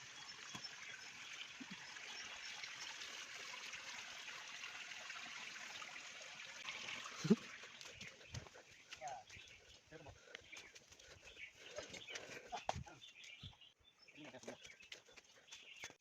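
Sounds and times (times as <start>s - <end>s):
stream water rushing: 0.1s - 8.1s.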